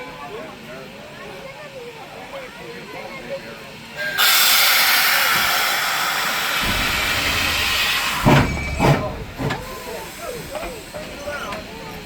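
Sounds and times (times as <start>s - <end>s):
steam locomotive exhaust chuffs: 4.0s - 11.7s
steam hissing: 4.0s - 12.0s.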